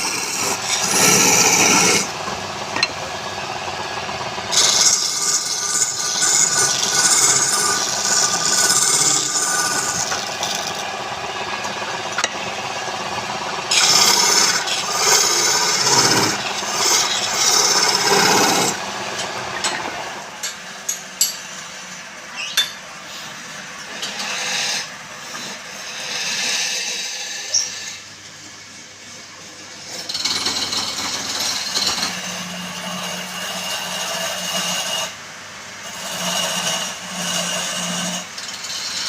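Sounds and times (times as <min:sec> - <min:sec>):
lathe tool scraping wood: 0:00.0 - 0:20.0, 0:23.9 - 0:28.0, 0:29.9 - 0:35.2, 0:35.8 - 0:39.0.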